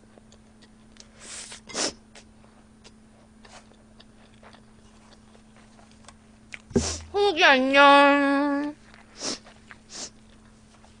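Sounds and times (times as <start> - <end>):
chewing clicks: 0.2 - 1.1, 2.8 - 6.7.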